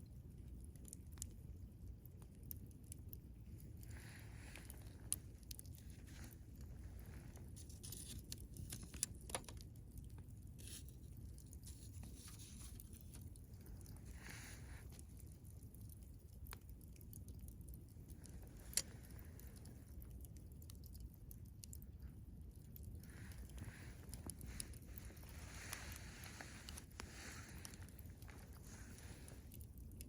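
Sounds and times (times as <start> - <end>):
campfire crackling and popping: 0.0 - 30.0
steady low rumble: 0.0 - 30.0
fire hissing: 3.5 - 9.3, 10.5 - 15.7, 22.9 - 30.0.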